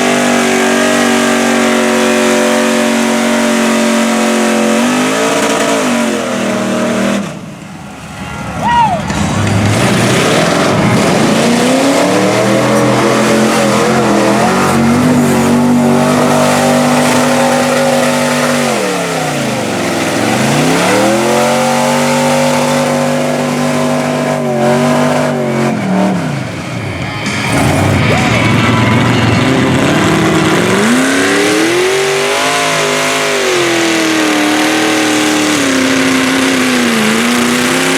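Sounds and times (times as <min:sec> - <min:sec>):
truck engine revving hard: 0:00.0 - 0:37.9.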